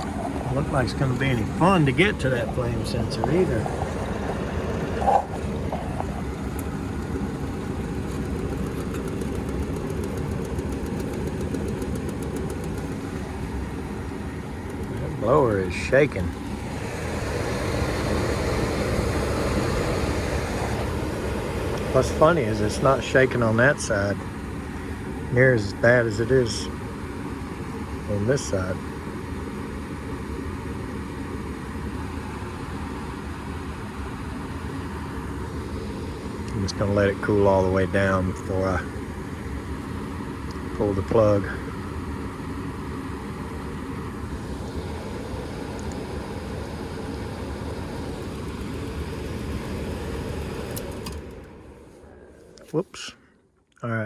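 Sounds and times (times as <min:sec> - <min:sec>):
faint rapid ticking: 0:00.0 - 0:13.7, 0:14.4 - 0:18.8
furnace blower rumbling: 0:00.0 - 0:53.3.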